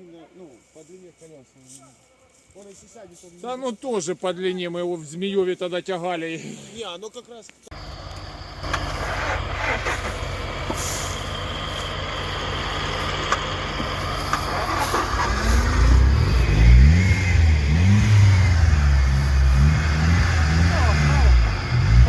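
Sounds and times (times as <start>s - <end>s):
car engine revving: 7.7s - 22.0s.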